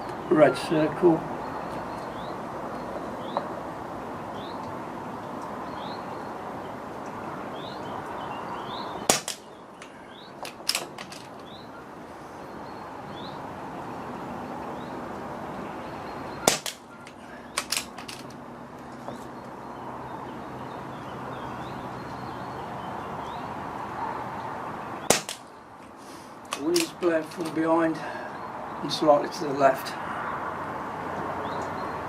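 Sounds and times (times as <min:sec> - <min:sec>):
air rifle shots: 0:09.0 - 0:09.5, 0:16.4 - 0:16.9, 0:25.1 - 0:25.5.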